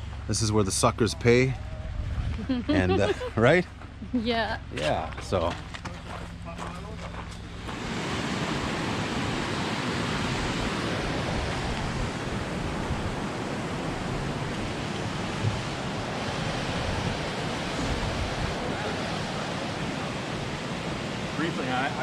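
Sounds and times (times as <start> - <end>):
creek rushing: 7.4 - 22.0.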